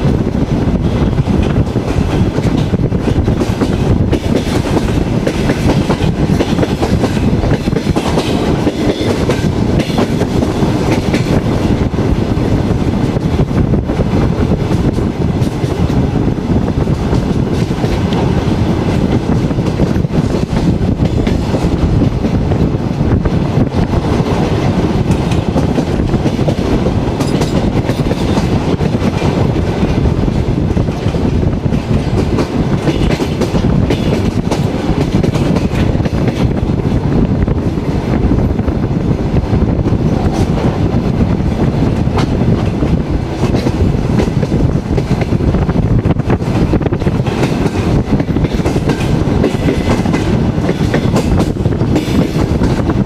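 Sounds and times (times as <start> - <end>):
train wheels rumbling on rail: 0.0 - 53.0
wheels clacking over rail joints: 24.5 - 30.0, 46.3 - 53.0.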